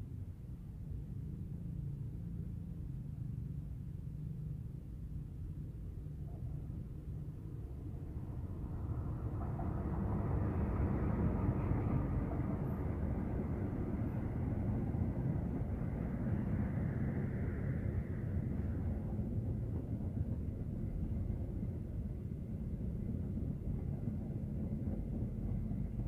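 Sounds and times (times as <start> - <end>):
passenger train passing: 5.5 - 26.0.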